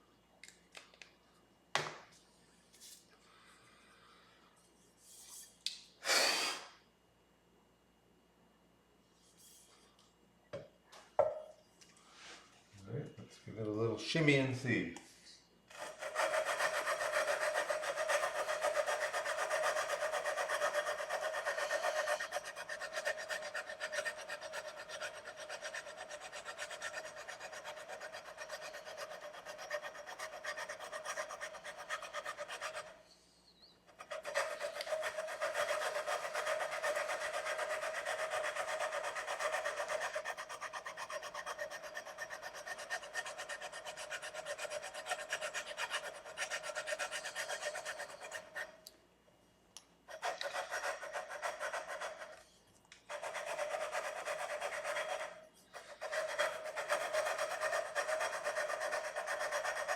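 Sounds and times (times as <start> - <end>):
sandpaper scraping metal frets: 15.8 - 33.0, 34.0 - 48.7, 50.1 - 52.4, 53.1 - 59.9.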